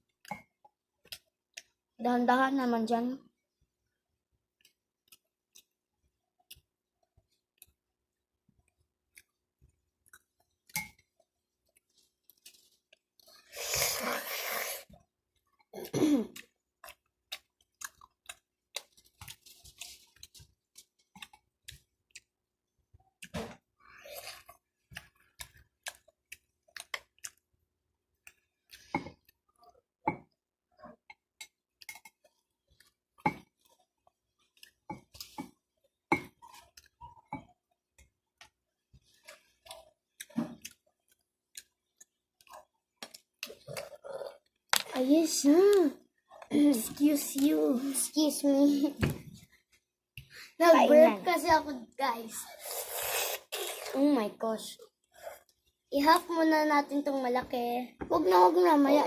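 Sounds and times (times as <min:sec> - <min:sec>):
person chewing food: 0:04.2 - 0:44.9.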